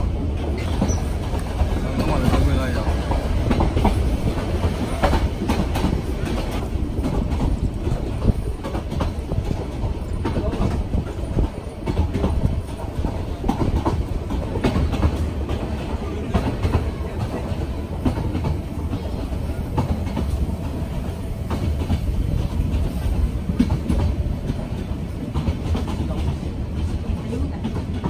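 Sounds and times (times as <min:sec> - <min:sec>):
train rumbling: 0:00.0 - 0:28.0.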